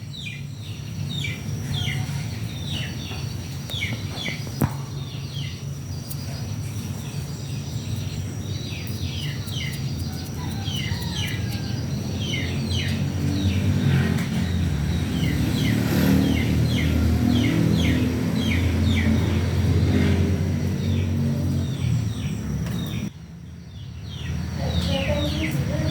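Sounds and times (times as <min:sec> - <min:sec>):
cockatiels chirping: 0:01.2 - 0:13.7.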